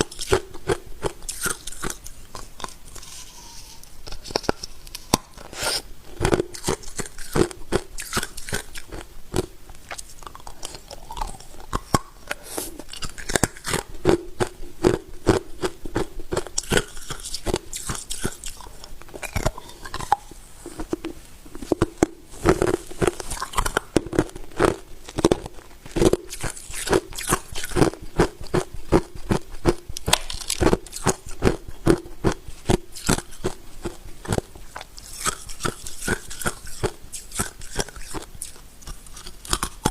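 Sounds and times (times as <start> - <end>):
person crunching ice: 4.2 - 9.5, 21.8 - 34.5.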